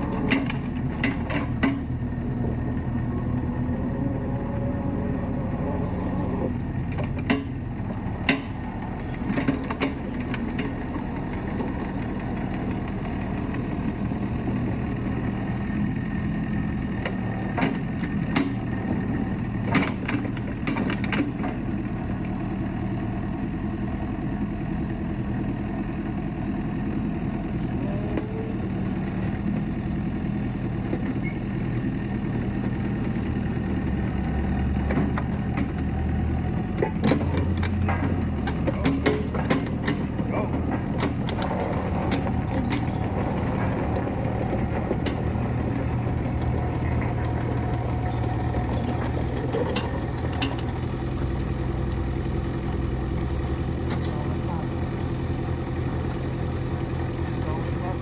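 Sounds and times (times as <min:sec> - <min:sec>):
excavator diesel engine running: 0:00.0 - 0:58.0
sharp knocks and clanks: 0:36.7 - 0:51.3.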